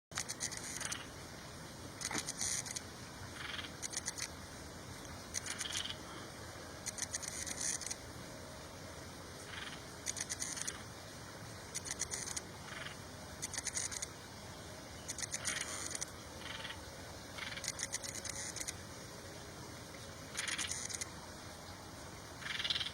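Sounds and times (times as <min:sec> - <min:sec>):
small bird buzzy chattering: 0:00.1 - 0:01.2, 0:02.0 - 0:04.4, 0:05.3 - 0:06.0, 0:06.8 - 0:08.0, 0:09.4 - 0:10.9, 0:11.6 - 0:14.2, 0:15.0 - 0:18.9, 0:20.3 - 0:21.2, 0:22.4 - 0:22.9.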